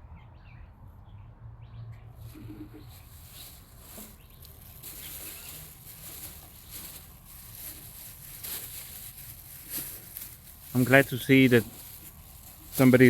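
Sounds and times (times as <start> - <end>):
faint bird calls: 2.2 - 7.7
soft rustles: 2.2 - 13.0.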